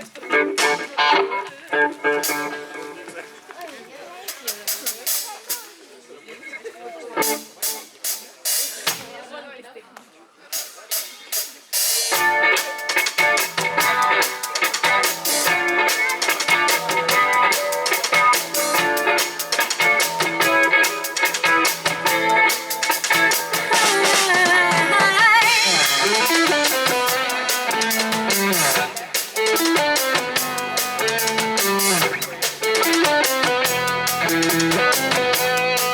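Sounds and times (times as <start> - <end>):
drum kit: 0.0 - 3.2, 4.3 - 5.8, 7.2 - 9.2, 10.5 - 35.9
electric guitar: 0.0 - 3.4, 12.1 - 35.9.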